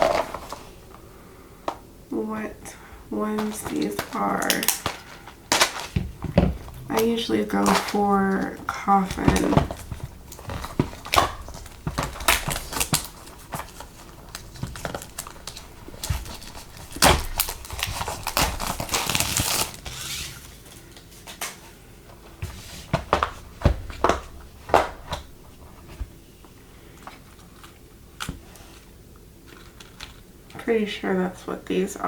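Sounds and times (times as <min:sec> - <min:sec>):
plastic packaging crinkling: 0:00.0 - 0:01.1, 0:03.2 - 0:21.8, 0:22.4 - 0:26.2.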